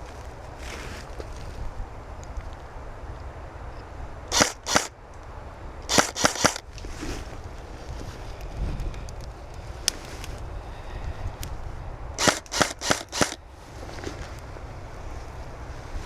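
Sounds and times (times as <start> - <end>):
wind rumble on microphone: 0.0 - 16.0
airsoft gun shots: 4.3 - 4.9, 5.9 - 6.6, 12.2 - 13.4.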